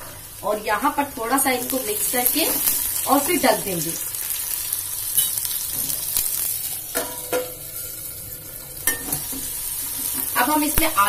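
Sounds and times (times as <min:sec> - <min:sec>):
vegetables sizzling in hot oil: 0:00.0 - 0:11.0
steel plate lid clink: 0:06.9 - 0:07.5, 0:08.8 - 0:09.3.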